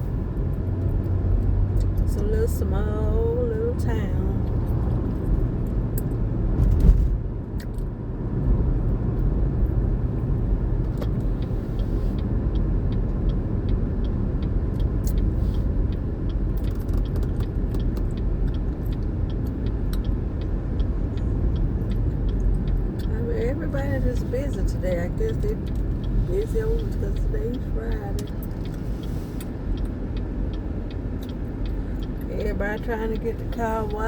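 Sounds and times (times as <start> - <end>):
engine rumble inside truck cab: 0.0 - 34.0
faint regular ticking: 10.4 - 34.0.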